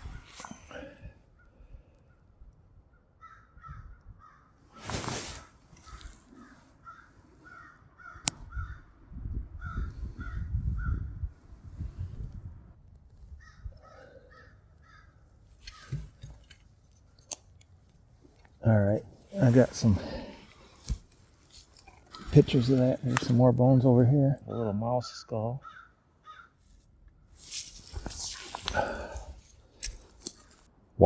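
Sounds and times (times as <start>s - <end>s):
rustle: 4.7s - 6.7s, 26.6s - 30.7s.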